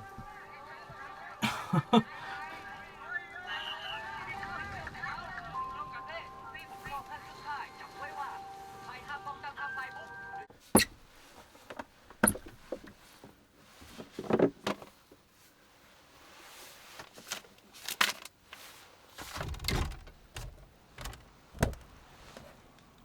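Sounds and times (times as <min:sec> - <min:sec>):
objects knocking and thumping: 0:10.8 - 0:15.0.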